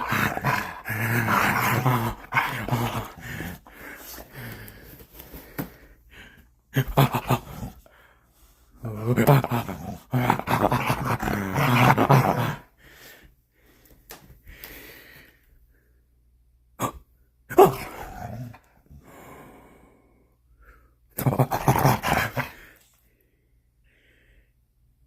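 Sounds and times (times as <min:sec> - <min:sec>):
dog play growls and snorts: 0:00.0 - 0:04.5, 0:06.8 - 0:07.9, 0:08.8 - 0:12.6, 0:17.6 - 0:18.6, 0:21.2 - 0:22.8.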